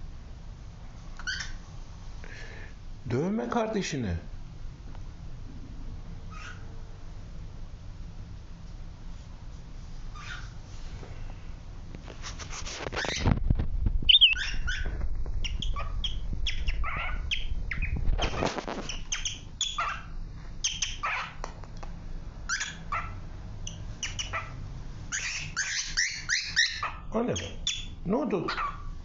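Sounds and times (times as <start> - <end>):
cockatiels squawking: 1.2 - 1.6, 6.3 - 6.6, 10.1 - 10.6, 14.1 - 21.5, 22.5 - 29.0
scuffling and rustling: 12.0 - 16.5, 17.9 - 19.2.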